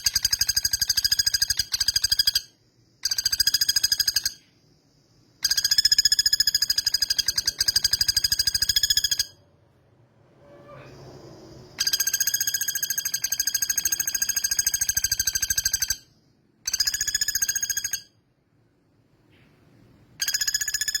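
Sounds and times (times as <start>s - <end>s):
woodpecker rattling trill: 0.0s - 4.4s, 5.4s - 9.4s, 11.8s - 18.2s, 20.2s - 21.0s.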